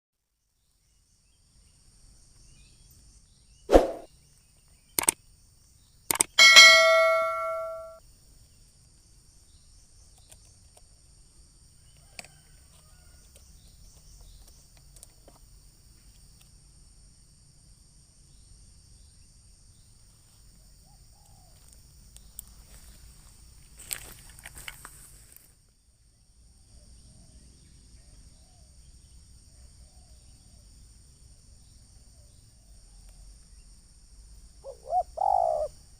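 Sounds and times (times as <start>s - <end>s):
metallic clang ringing: 6.4s - 8.0s.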